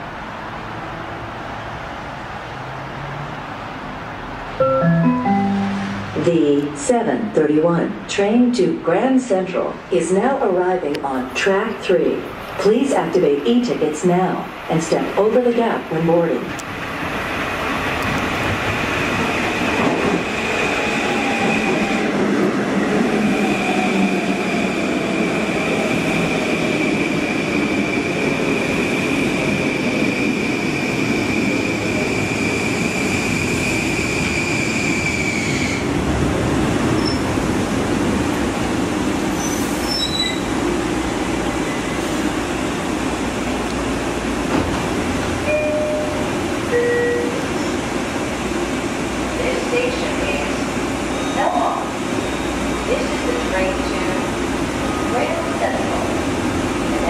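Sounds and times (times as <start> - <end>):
two-note chime: 4.6 - 6.3
high brake squeal: 37.0 - 37.2, 39.3 - 40.5, 51.1 - 51.6, 52.2 - 52.7.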